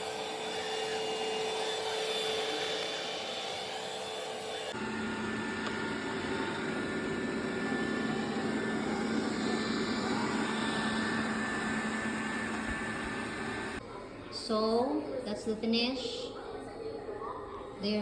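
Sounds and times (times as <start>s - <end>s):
robot vacuum suction fan whirring: 0.0s - 13.8s.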